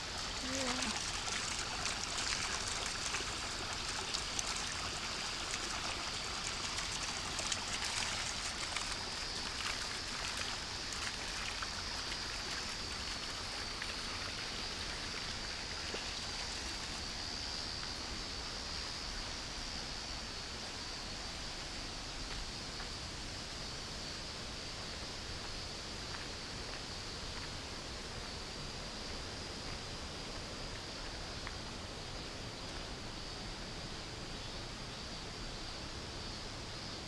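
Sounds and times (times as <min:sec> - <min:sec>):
small splashes: 0:00.0 - 0:17.0.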